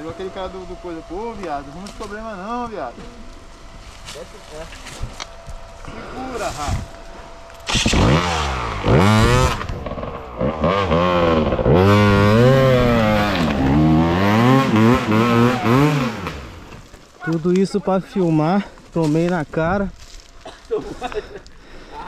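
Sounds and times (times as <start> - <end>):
dirt bike engine revving: 5.8 - 16.8.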